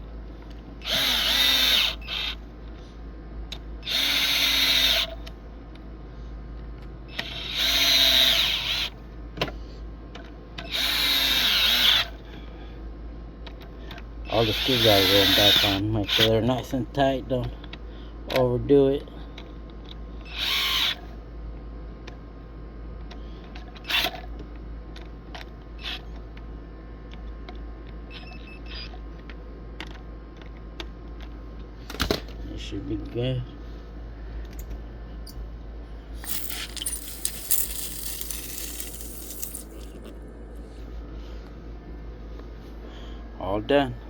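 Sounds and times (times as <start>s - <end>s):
cordless drill driving screws: 0.9s - 1.9s, 36.2s - 40.0s
drill click: 36.2s - 40.1s.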